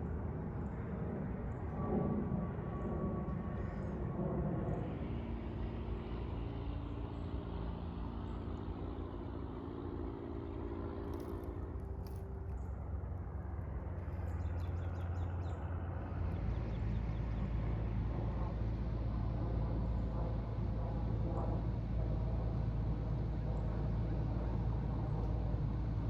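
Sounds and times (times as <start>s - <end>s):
vehicle engine rumble: 4.1s - 26.0s.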